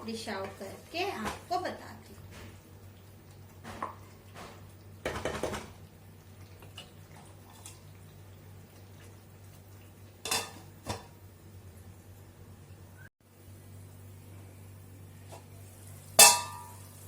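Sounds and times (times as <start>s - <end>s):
spoon clinking on pot: 10.3s - 11.0s, 16.2s - 16.8s.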